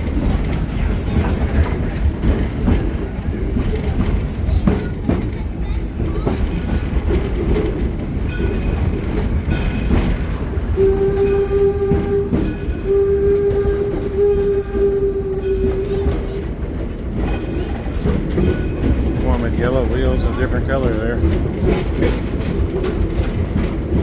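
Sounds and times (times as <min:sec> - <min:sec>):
train cars clattering on rails: 0:00.0 - 0:24.0
steam whistle blasts: 0:10.7 - 0:16.3.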